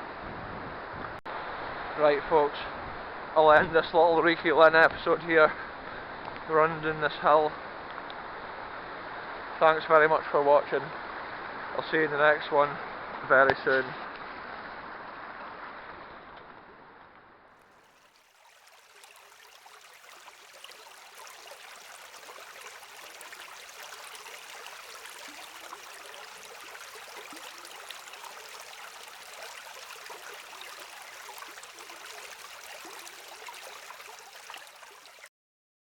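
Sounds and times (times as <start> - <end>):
river water rushing: 17.8 - 35.3.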